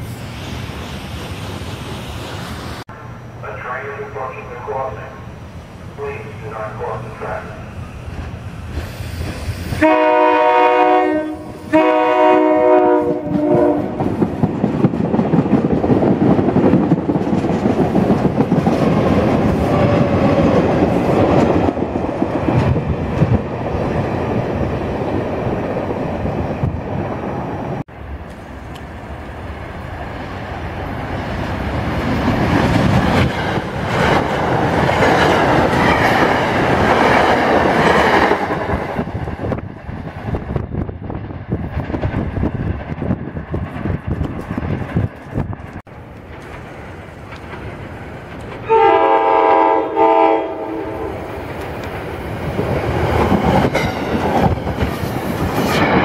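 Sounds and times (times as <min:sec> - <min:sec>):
train rumble passing: 0:00.0 - 0:56.0
train chord horn: 0:09.8 - 0:14.0, 0:48.6 - 0:51.3
train wheels clicking over rail joints: 0:13.3 - 0:24.4, 0:41.5 - 0:48.7, 0:51.4 - 0:56.0.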